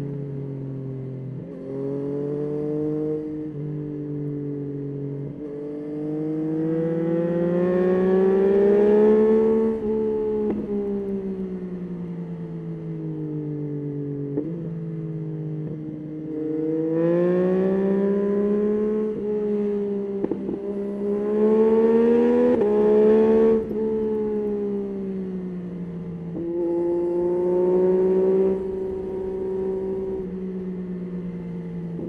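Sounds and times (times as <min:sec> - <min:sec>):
motorcycle engine revving: 0:05.3 - 0:11.1, 0:16.2 - 0:25.2, 0:25.8 - 0:32.0.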